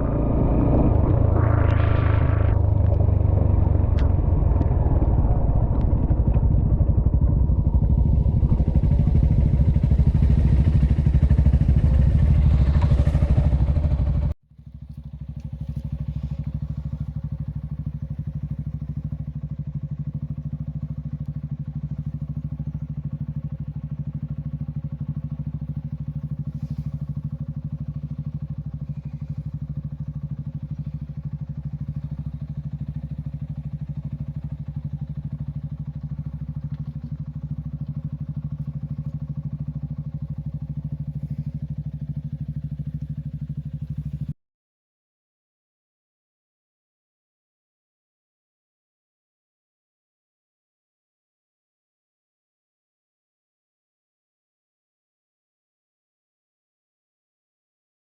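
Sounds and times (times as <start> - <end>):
wind on microphone: 0.0 - 12.6
motorcycle engine running: 0.0 - 44.4
quiet engine hum: 0.0 - 44.4.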